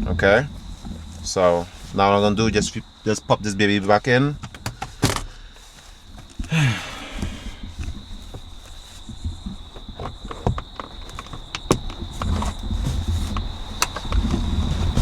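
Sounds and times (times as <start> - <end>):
plastic clicks and knocks: 4.4 - 5.3, 9.1 - 15.0.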